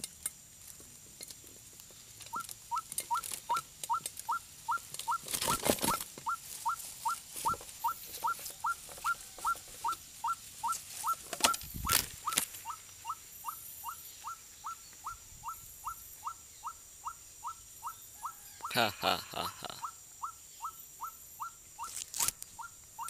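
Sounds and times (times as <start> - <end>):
rustling or scuffling: 0.6 - 13.0
bird squeaky calls: 2.3 - 18.8, 19.8 - 23.0.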